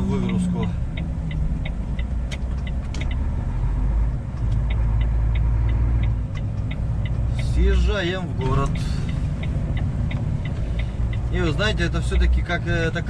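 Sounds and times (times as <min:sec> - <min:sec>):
truck engine and road rumble: 0:00.0 - 0:13.0
turn signal ticking: 0:00.0 - 0:13.0.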